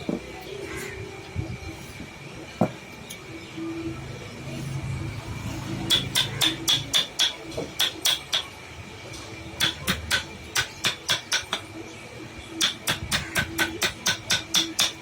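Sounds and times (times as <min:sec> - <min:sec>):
mallet tapping chisel into wood: 0:12.6 - 0:15.0.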